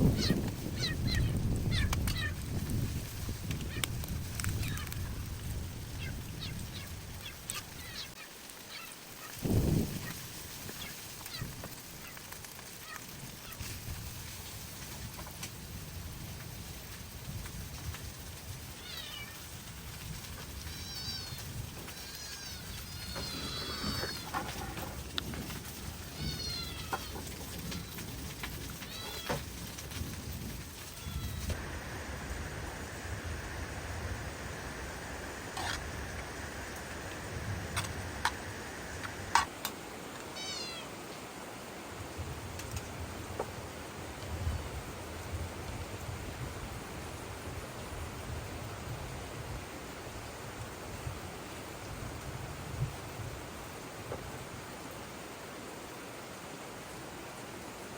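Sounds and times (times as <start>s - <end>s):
small animal high-pitched cries: 0.0s - 2.4s, 6.0s - 9.3s, 18.8s - 19.4s, 20.6s - 24.3s, 26.1s - 27.2s, 28.8s - 29.4s, 31.0s - 31.6s, 40.3s - 41.0s
rain hissing: 0.0s - 57.9s.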